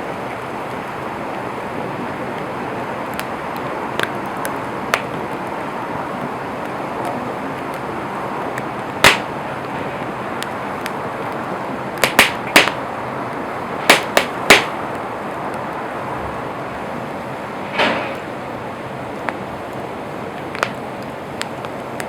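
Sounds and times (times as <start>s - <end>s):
campfire crackling: 0.0s - 22.0s
sharp pops of fire: 3.1s - 15.8s, 17.5s - 22.0s.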